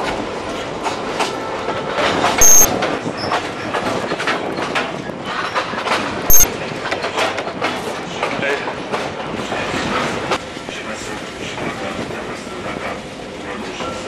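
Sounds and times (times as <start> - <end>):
train wheels clicking over rail joints: 2.0 - 10.4.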